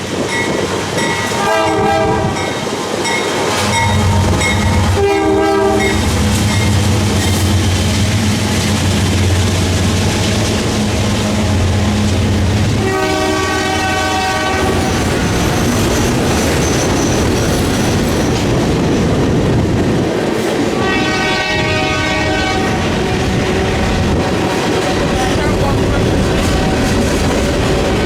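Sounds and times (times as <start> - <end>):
freight train rumble and rail clatter: 0.0 - 28.0
locomotive air horn blasts: 1.3 - 2.6, 3.7 - 6.8, 12.8 - 15.0, 20.8 - 23.9.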